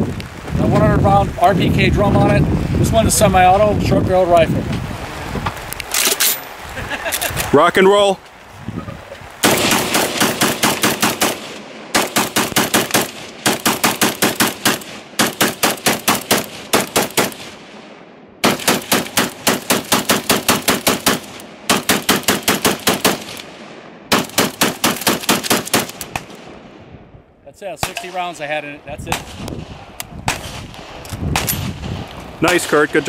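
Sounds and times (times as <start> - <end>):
rifle shots: 9.4 - 26.6, 27.8 - 28.3, 29.1 - 33.0.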